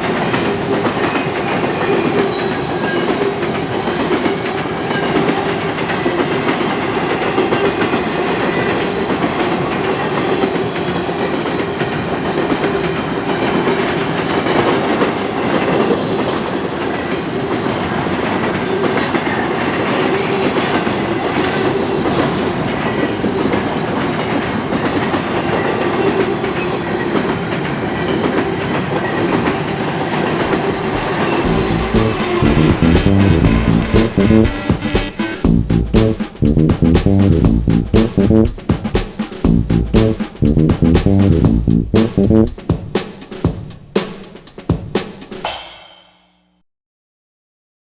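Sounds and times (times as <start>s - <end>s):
freight train rolling past: 0.0s - 36.4s
music: 30.8s - 46.2s.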